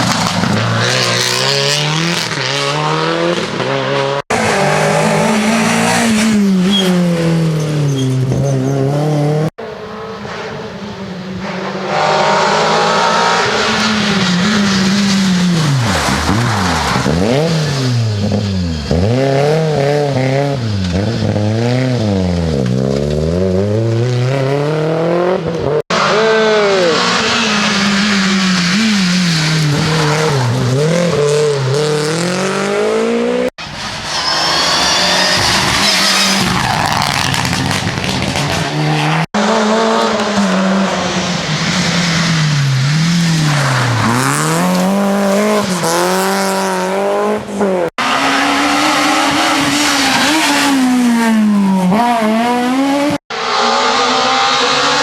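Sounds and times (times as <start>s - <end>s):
rally car engines revving: 0.0s - 55.0s
tyre squeal: 6.5s - 8.8s, 33.6s - 37.7s.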